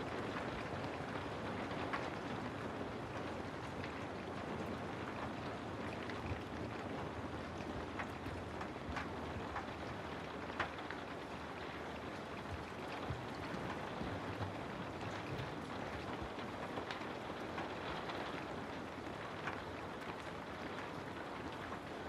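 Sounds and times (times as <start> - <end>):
steady rain hiss: 0.0 - 22.0
raindrops tapping: 3.2 - 22.0.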